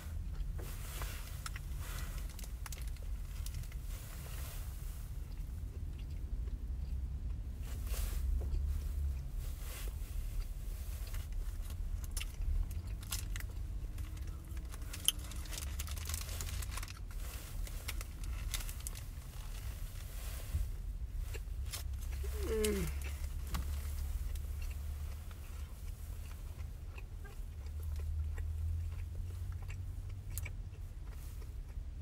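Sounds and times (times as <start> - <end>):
low rumble inside car: 0.0 - 32.0
person chewing burger: 0.0 - 32.0
mouth clicks and crunches: 0.1 - 4.6, 5.2 - 20.3, 21.1 - 32.0
paper wrapper crinkling: 14.1 - 19.6.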